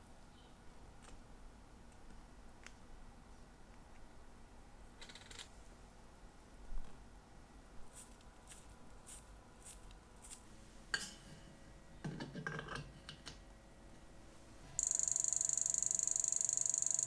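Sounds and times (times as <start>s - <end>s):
fast high-pitched amplified ticking: 14.8s - 17.0s.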